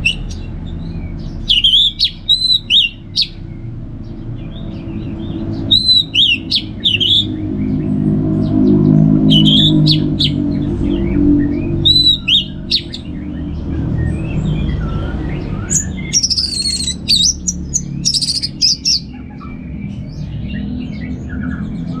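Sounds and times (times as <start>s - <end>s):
thrush singing: 0.0s - 0.5s, 1.4s - 3.4s, 5.4s - 18.9s.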